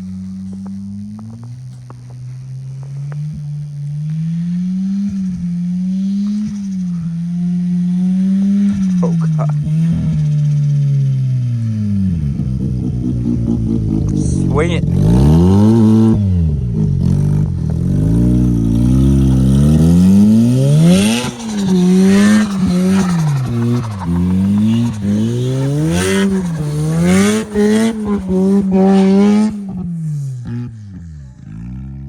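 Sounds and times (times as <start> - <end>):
rotary engine revving: 0.0 - 32.0
turbo flutter: 18.6 - 29.8.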